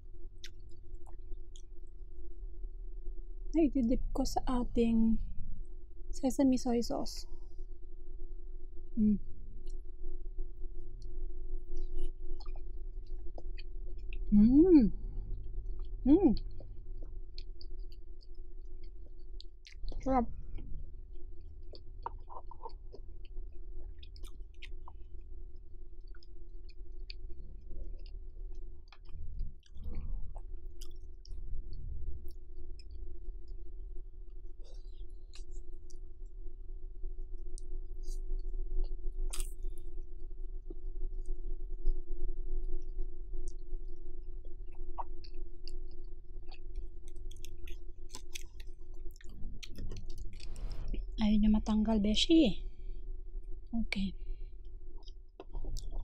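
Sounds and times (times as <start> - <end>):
low background hum: 0.0 - 56.0
close chewing: 21.1 - 31.4, 39.3 - 39.8, 42.8 - 50.9
wet mouth clicks: 39.3 - 39.6.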